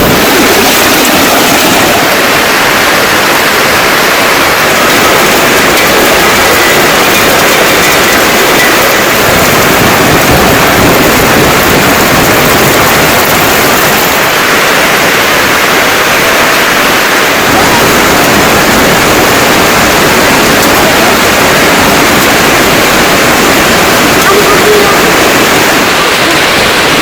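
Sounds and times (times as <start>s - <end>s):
heavy rain falling: 0.0s - 27.0s.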